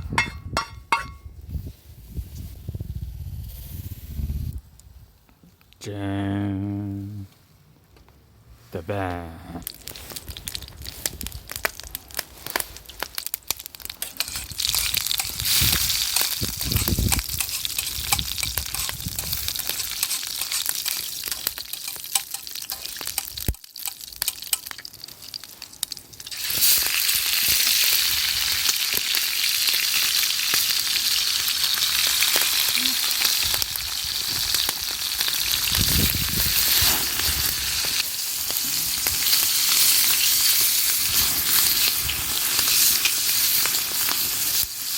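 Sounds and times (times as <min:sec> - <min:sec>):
food frying in a pan: 0:09.6 - 0:44.9.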